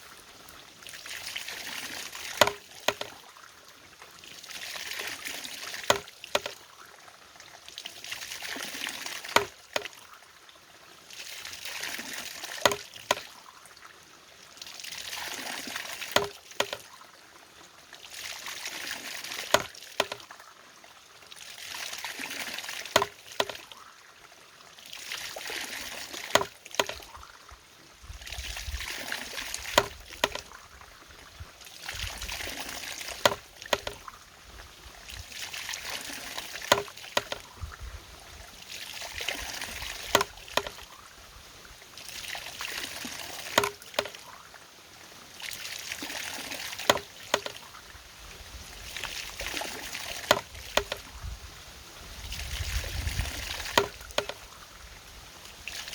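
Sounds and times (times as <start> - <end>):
water gushing and splashing: 0.0 - 3.4, 4.0 - 6.8, 7.6 - 10.2, 11.0 - 13.5, 14.5 - 17.0, 18.0 - 20.5, 21.2 - 23.8, 24.8 - 27.4, 28.0 - 44.5, 45.2 - 55.9
sharp knock of mechanism: 2.4 - 3.1.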